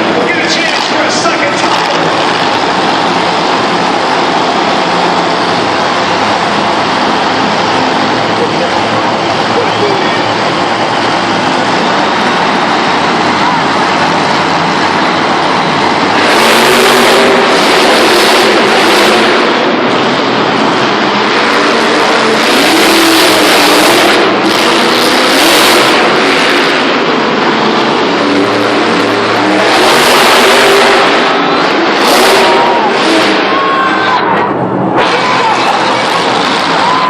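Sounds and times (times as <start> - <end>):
monster truck engines revving: 0.0 - 37.0.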